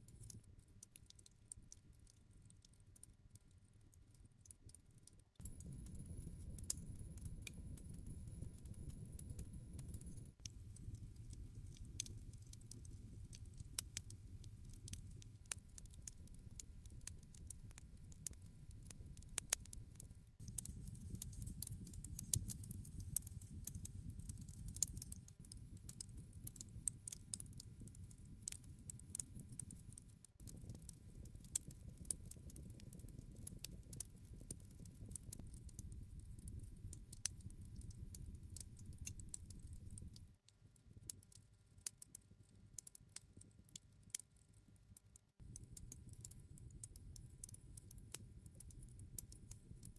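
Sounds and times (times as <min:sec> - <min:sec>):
wood fire crackling: 0:09.8 - 0:19.8, 0:20.4 - 0:41.3.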